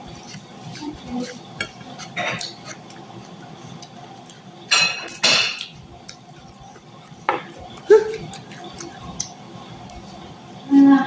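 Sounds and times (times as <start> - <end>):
utensils clinking on a dish: 1.6 - 2.6, 4.7 - 5.7
mouth eating noises: 5.1 - 10.0.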